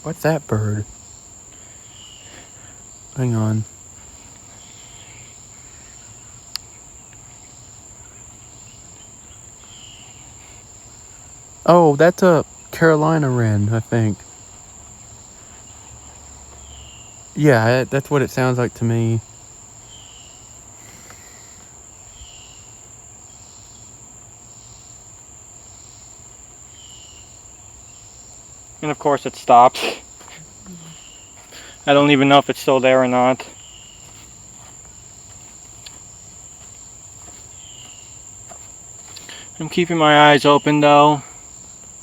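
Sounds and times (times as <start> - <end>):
faint bird calls: 0.0 - 12.0, 19.1 - 22.7, 28.8 - 41.5
crickets trilling: 0.0 - 42.0
insects droning: 0.0 - 42.0.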